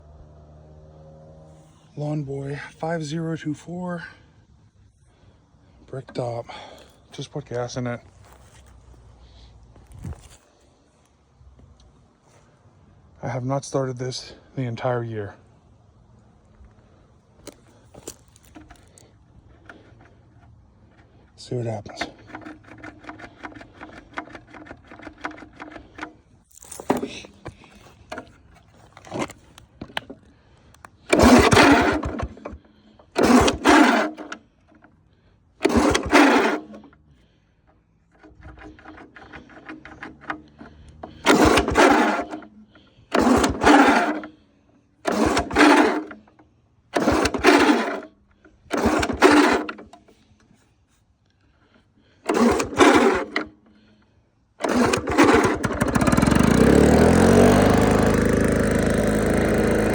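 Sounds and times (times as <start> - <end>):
lawn mower engine running: 0.0 - 10.9, 16.8 - 50.7, 51.6 - 59.9
recoil starter cord cranking: 5.8 - 8.8, 17.4 - 50.6, 51.6 - 59.9.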